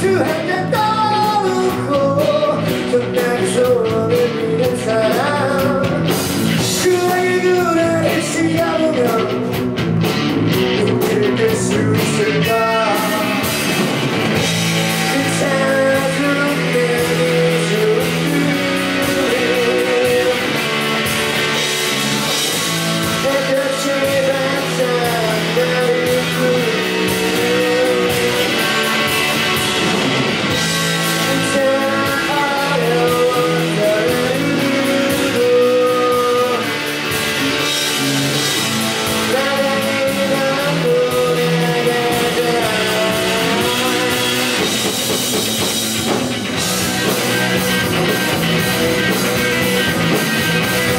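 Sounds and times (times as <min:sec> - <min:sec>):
rock band playing live: 0:00.0 - 0:50.9.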